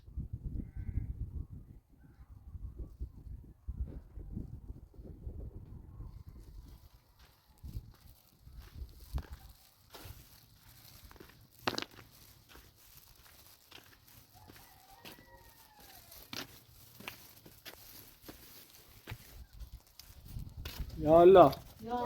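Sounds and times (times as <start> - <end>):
rustling: 8.0 - 22.0.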